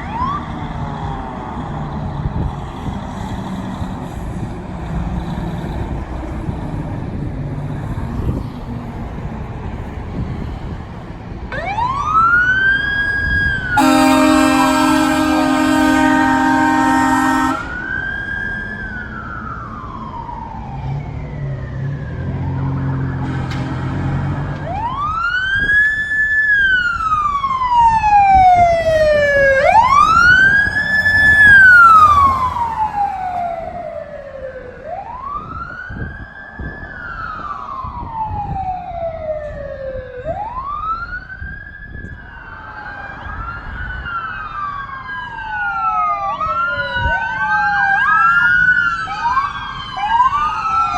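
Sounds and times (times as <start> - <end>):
emergency siren wailing: 0.0 - 50.9
second siren: 11.5 - 50.9.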